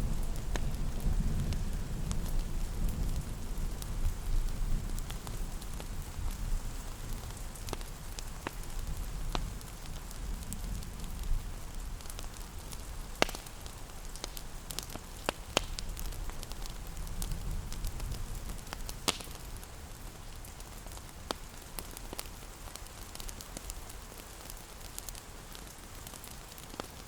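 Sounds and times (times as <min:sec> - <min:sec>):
steady rain: 0:00.0 - 0:27.0
wood fire crackling: 0:00.0 - 0:27.0.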